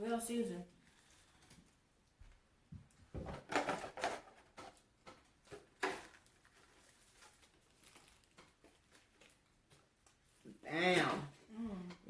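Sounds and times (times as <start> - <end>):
crunching and chewing food: 5.0 - 10.5.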